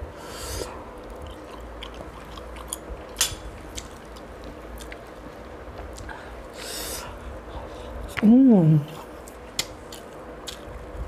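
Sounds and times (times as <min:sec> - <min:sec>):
person chewing food: 0:00.2 - 0:06.8, 0:09.2 - 0:11.0.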